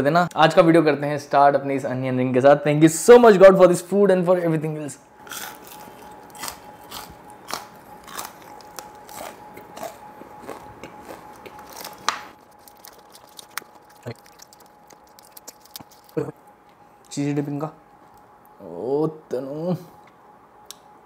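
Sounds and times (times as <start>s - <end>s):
ceiling fan hum: 0.0s - 21.0s
crunchy chewing: 5.2s - 16.4s
clicks and crinkles: 11.3s - 16.2s.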